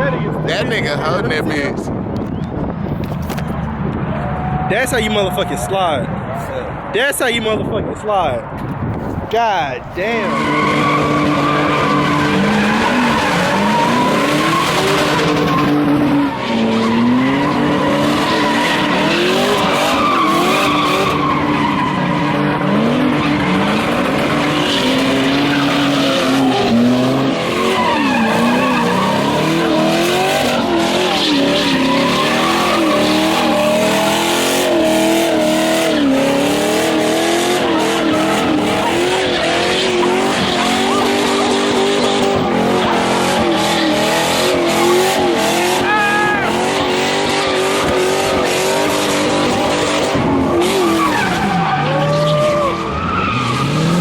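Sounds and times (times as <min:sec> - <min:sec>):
tyres squealing and skidding: 0:09.8 - 0:54.0
car engine revving: 0:10.0 - 0:54.0.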